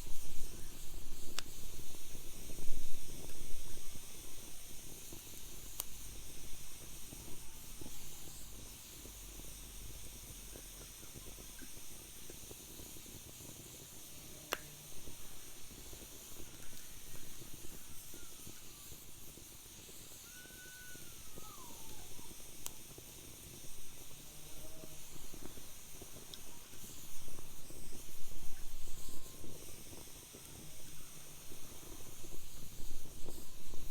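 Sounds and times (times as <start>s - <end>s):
wood fire crackling and popping: 0.0s - 24.2s
faint wavering whistle: 16.6s - 19.2s, 19.8s - 22.6s.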